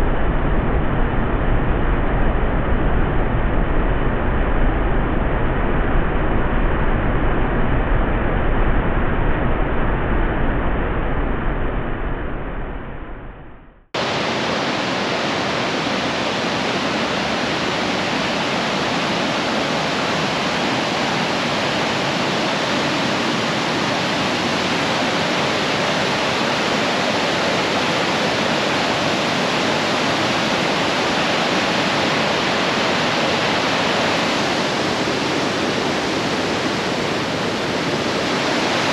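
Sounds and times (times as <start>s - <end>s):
dull rushing with deep rumble: 0.0s - 38.9s
waterfall rushing: 14.0s - 38.9s.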